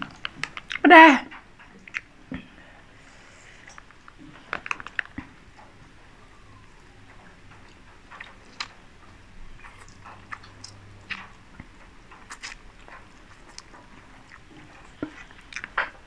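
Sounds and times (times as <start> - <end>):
noodles slurped and chewed: 9.6 - 16.0.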